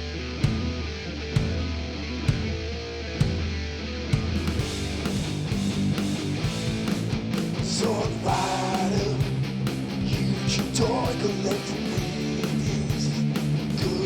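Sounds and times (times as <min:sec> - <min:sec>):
rock music with electric guitar: 0:00.0 - 0:14.0
person singing: 0:07.7 - 0:09.3, 0:10.1 - 0:13.2, 0:13.8 - 0:14.0.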